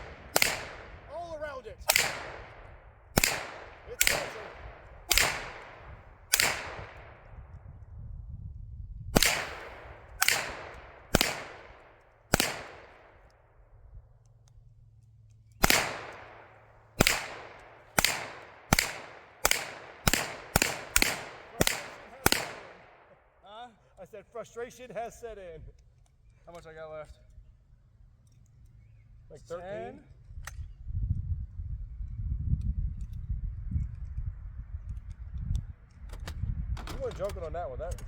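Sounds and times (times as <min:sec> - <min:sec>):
gunshots with echo: 0:00.0 - 0:01.1, 0:01.8 - 0:07.3, 0:09.2 - 0:13.2, 0:15.6 - 0:23.1.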